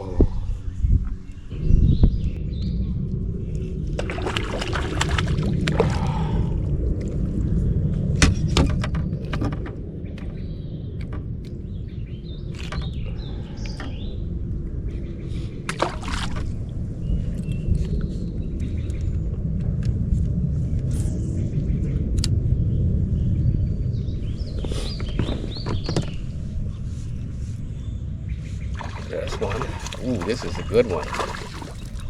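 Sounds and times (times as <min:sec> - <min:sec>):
steady low rumble: 0:00.0 - 0:32.0
water sloshing around kayak: 0:03.9 - 0:06.3, 0:15.7 - 0:16.8, 0:28.6 - 0:32.0.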